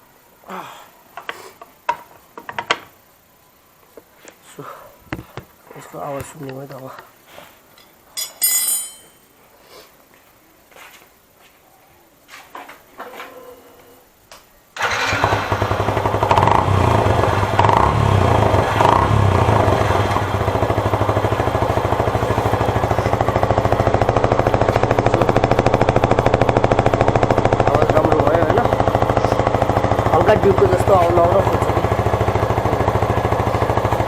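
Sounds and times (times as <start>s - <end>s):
motorcycle engine revving and idling: 14.8s - 34.0s.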